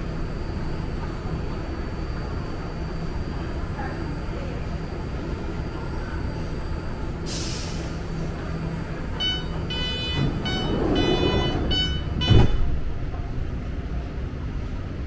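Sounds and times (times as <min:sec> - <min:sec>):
train rumbling: 0:00.0 - 0:15.0
high-pitched train squeal: 0:09.2 - 0:12.7
loud thump: 0:12.2 - 0:12.9.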